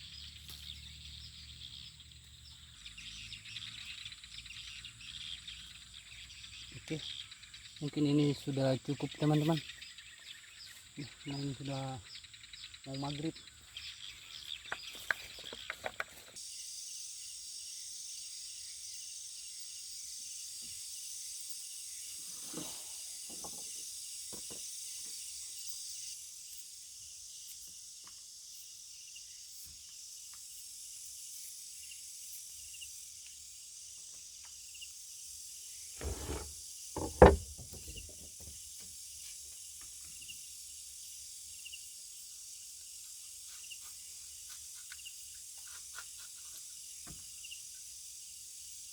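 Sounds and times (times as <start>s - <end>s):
insects chorus: 0.0s - 38.2s
sharp loud knock: 36.0s - 38.0s
soft knocks: 36.0s - 38.2s.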